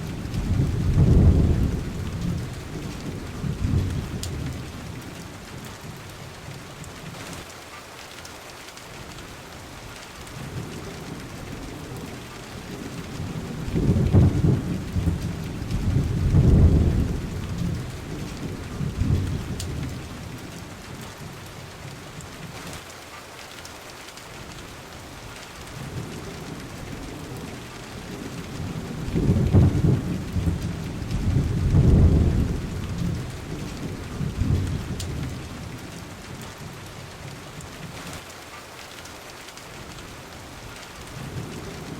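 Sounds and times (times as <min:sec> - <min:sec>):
rolling thunder: 0:00.0 - 0:06.1, 0:10.5 - 0:20.4, 0:25.8 - 0:36.0
steady rain falling: 0:00.0 - 0:41.9.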